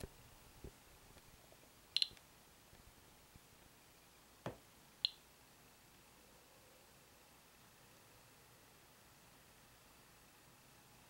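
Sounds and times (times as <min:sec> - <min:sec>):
geiger counter clicks: 0:02.0 - 0:02.2.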